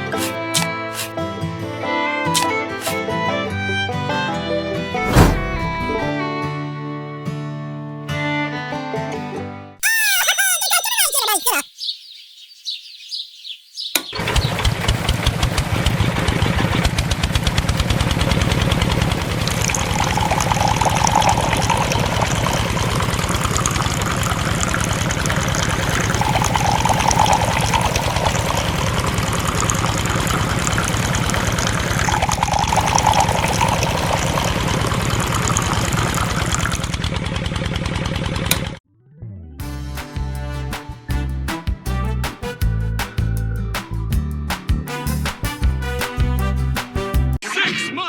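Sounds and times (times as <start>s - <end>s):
small engine running: 14.2s - 38.8s.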